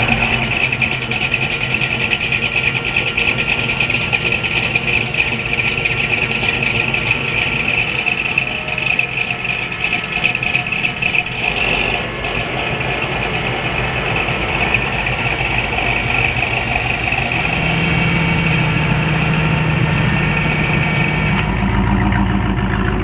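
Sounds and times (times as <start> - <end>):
car engine idling: 0.0 - 23.0
deep low engine note: 5.8 - 23.0.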